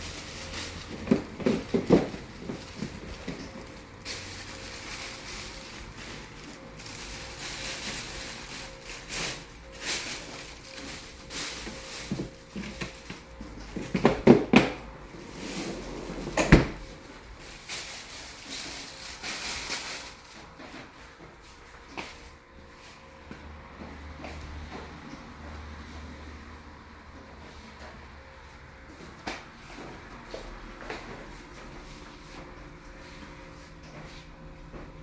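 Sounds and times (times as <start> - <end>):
plastic bags rustling: 0.0 - 23.2
items knocking: 0.1 - 15.6.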